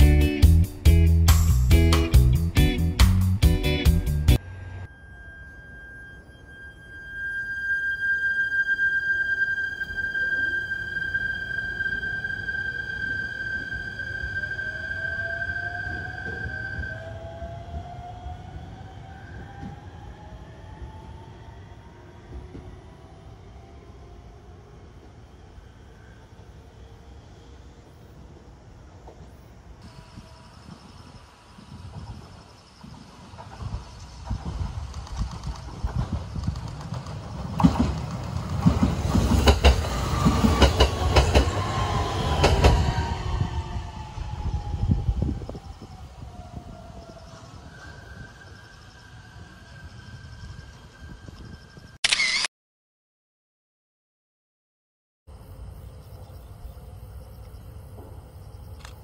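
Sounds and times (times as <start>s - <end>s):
electric train rumble: 0.0s - 52.0s
faint falling whine: 4.4s - 17.4s
train wheels clicking over rail joints: 31.9s - 42.9s.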